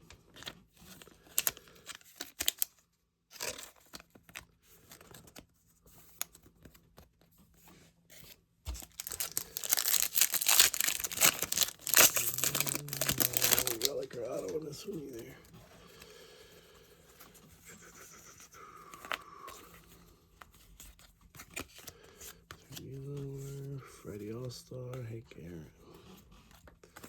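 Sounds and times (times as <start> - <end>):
card wrapper tearing and crinkling: 0.9 - 4.1, 8.7 - 15.4.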